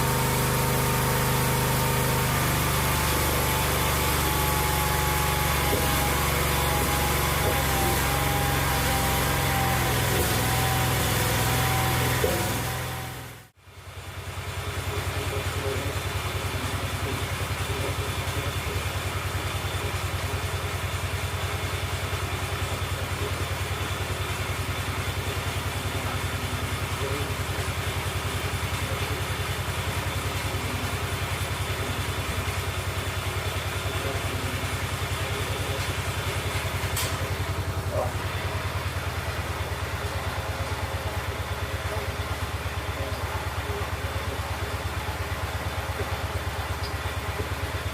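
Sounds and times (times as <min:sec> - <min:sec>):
single-cylinder engine running: 0:00.0 - 0:47.9.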